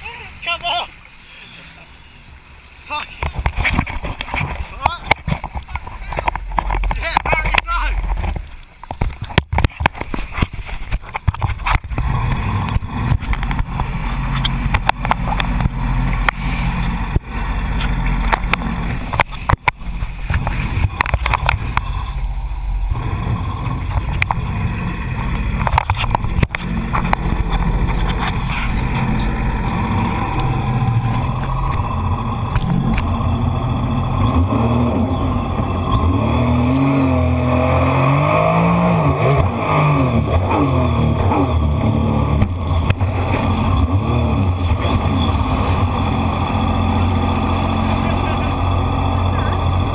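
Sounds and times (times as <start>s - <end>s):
jet ski engine running: 0.0s - 49.9s
sharp knocks and buffeting: 3.2s - 22.1s, 23.0s - 36.8s.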